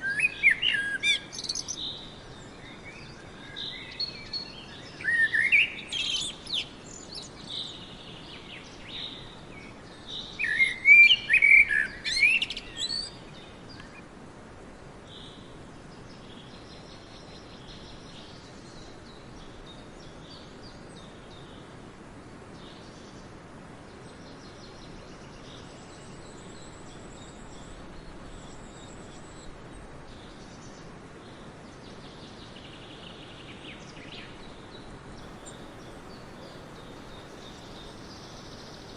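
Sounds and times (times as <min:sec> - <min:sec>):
songbirds singing and chirping: 0:00.0 - 0:14.1, 0:23.9 - 0:38.9
steady background hiss: 0:00.0 - 0:38.9.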